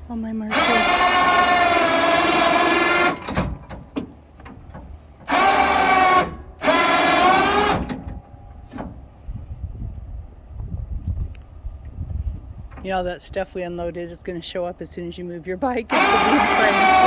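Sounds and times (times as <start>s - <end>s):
electric motor whining: 0.5s - 3.6s, 5.2s - 8.0s, 15.9s - 17.0s
low rumble: 8.1s - 14.8s.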